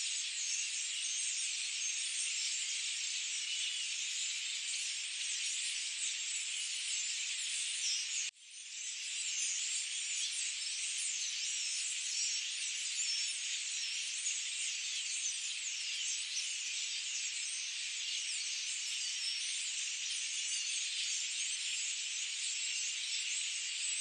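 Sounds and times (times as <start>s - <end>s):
forest birds chirping and whistling: 0.0s - 24.0s.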